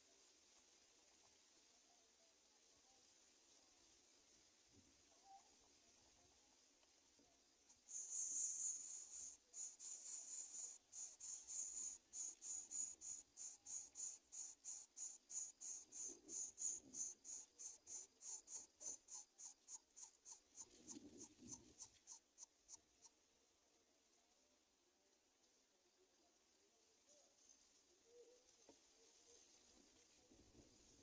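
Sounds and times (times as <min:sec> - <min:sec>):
nestlings begging calls: 0:07.9 - 0:22.1.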